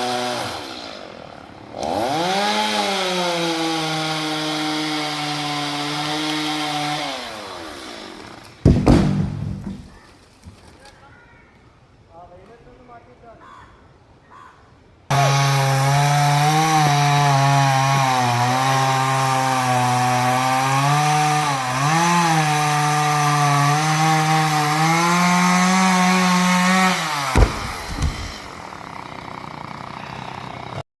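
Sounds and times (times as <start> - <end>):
chainsaw running: 0.0 - 8.6, 15.1 - 30.8
short knocks: 8.6 - 10.0, 27.2 - 28.6.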